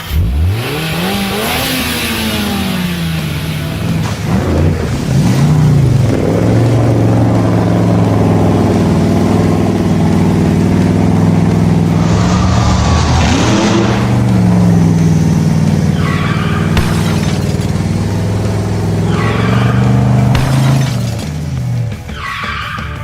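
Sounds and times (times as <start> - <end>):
vehicle engine at high revs: 0.0 - 21.8
hissing rush: 11.8 - 15.6.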